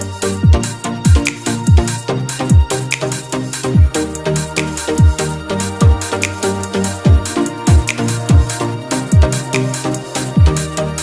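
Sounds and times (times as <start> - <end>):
electronic music with steady beat: 0.0 - 11.0
deep kick drums: 0.4 - 1.9, 2.5 - 2.8, 3.8 - 4.0, 5.0 - 6.1, 7.0 - 9.5, 10.4 - 10.8.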